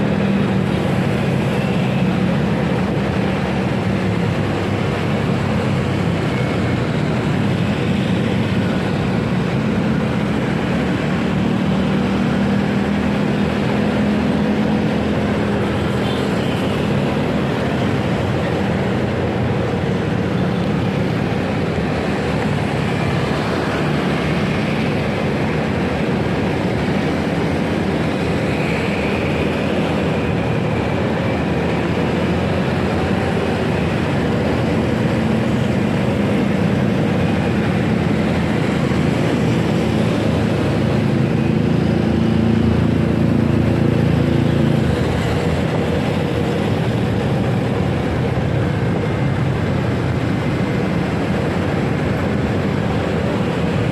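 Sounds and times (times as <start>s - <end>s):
motorcycle riding through traffic: 0.0s - 53.9s.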